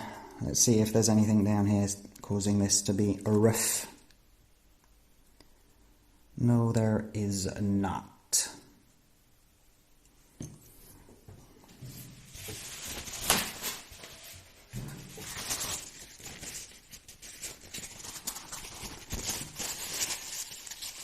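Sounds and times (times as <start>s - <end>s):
plastic parts rustling: 11.8s - 21.0s.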